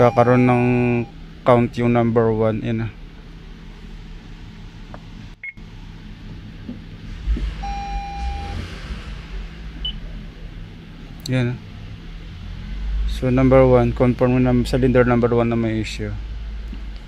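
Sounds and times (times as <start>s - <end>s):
electronic beep: 0.0s - 1.1s, 7.6s - 8.6s
misfiring car engine hum: 0.0s - 17.0s
low rumble: 3.0s - 14.9s.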